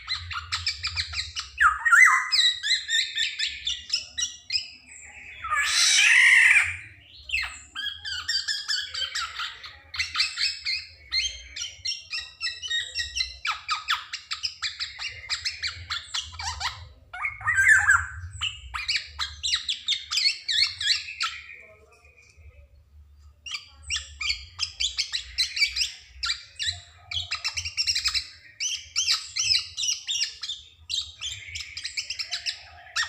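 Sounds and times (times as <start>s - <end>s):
bird harsh squawk: 5.4s - 6.9s.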